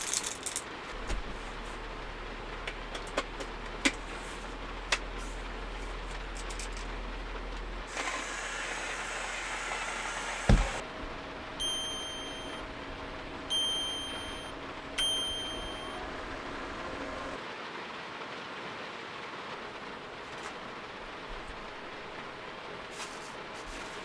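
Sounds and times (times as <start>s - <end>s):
steady rain: 0.0s - 11.6s, 16.0s - 24.0s
electric appliance humming: 0.0s - 17.4s
hissing: 3.6s - 13.4s
thump: 10.5s - 10.8s
electronic beeps: 11.6s - 12.6s, 13.5s - 17.4s.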